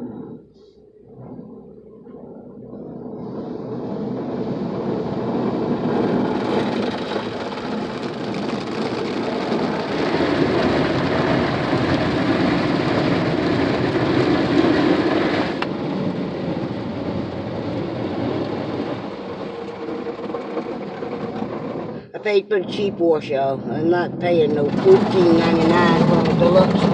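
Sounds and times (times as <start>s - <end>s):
water jets drumming on car: 3.8s - 22.0s, 24.2s - 26.9s.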